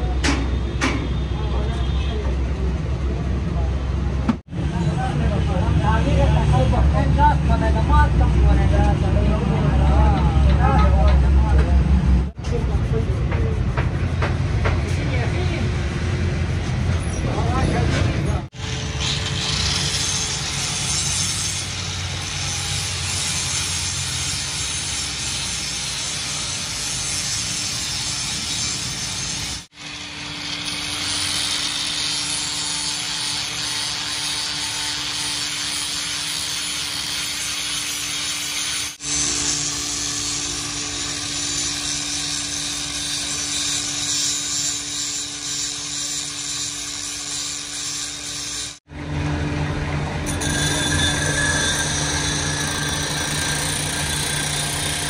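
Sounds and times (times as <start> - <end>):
power tool running: 18.5 - 55.0.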